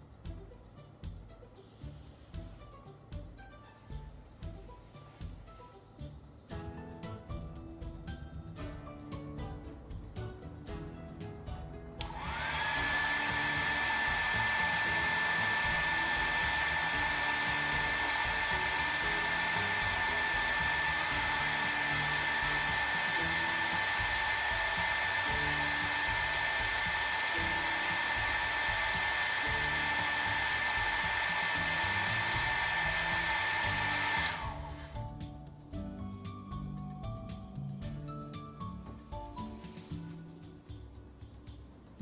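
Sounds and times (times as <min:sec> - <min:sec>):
exhaust fan motor whine: 0:12.0 - 0:35.2.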